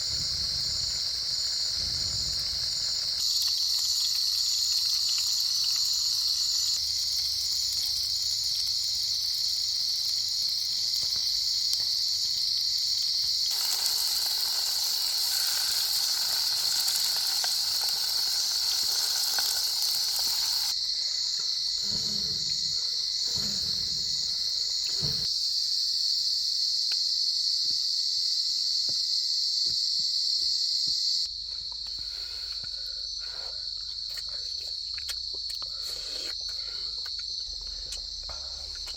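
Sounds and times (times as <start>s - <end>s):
pulsing insect call: 0.0s - 27.5s
chorus of insects: 0.0s - 38.9s
rushing hiss: 13.4s - 20.8s.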